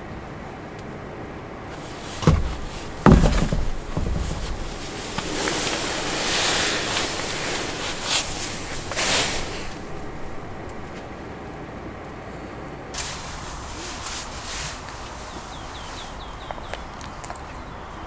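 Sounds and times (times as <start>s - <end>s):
wind gusting: 1.7s - 11.4s.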